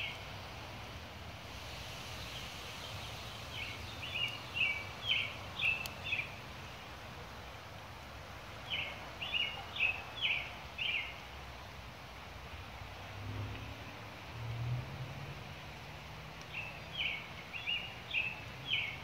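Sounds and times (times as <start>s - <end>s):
steady background hiss: 0.0s - 19.0s
songbird singing high notes: 2.2s - 6.4s.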